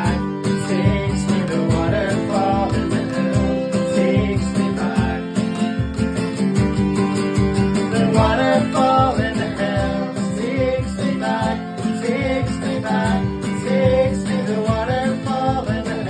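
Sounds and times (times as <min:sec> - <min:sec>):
person singing: 0:00.0 - 0:16.0
strummed acoustic guitar: 0:00.0 - 0:16.0.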